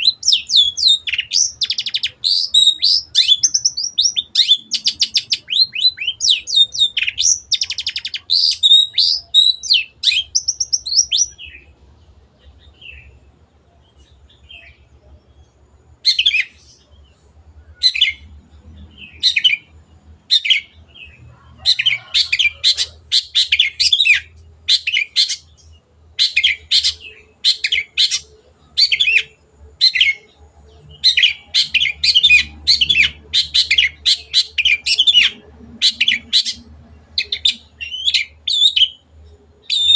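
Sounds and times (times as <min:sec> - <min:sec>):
bird whistled trills: 0:00.0 - 0:11.6, 0:31.0 - 0:36.6, 0:37.2 - 0:39.0, 0:39.6 - 0:39.9.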